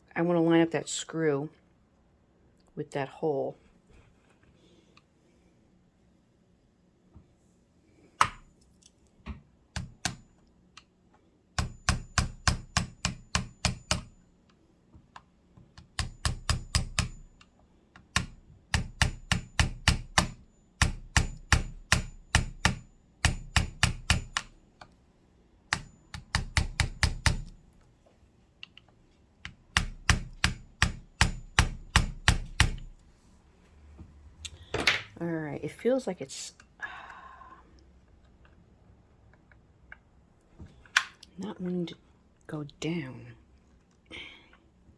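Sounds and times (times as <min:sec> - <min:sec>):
hammer tapping on metal: 0:11.6 - 0:14.2, 0:15.8 - 0:17.4, 0:18.0 - 0:24.5, 0:25.7 - 0:27.6, 0:29.4 - 0:33.0.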